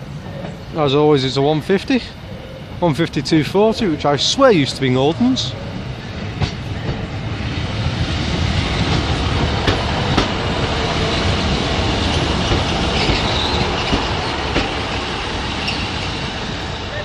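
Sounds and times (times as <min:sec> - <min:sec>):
train rumbling: 0:00.0 - 0:17.0
wheels clicking over rail joints: 0:11.8 - 0:15.0
faint high wheel squeal: 0:15.6 - 0:16.0.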